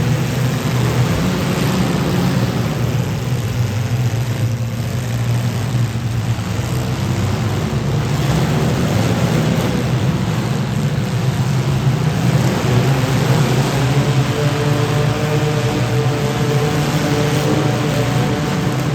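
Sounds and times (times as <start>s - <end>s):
car engines running hard: 0.0s - 18.9s.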